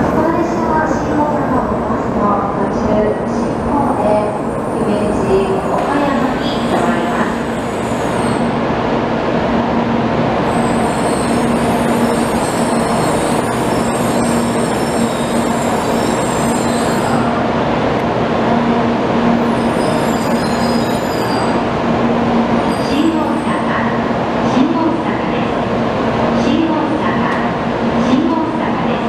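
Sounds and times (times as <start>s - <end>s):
high-pitched wheel squeal: 19.5s - 21.6s.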